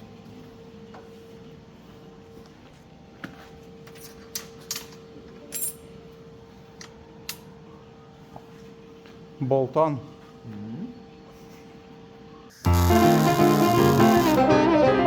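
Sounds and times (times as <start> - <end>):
metal tools clinking: 4.0 - 5.9.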